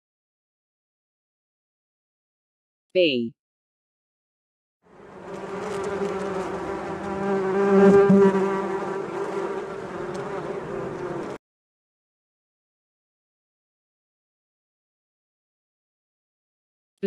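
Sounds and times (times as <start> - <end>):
bee buzzing: 4.9 - 11.4.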